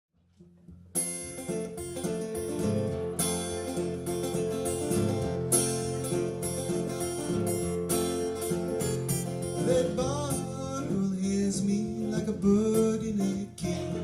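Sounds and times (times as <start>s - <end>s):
acoustic guitar music: 0.2s - 14.0s
person singing: 9.4s - 14.0s.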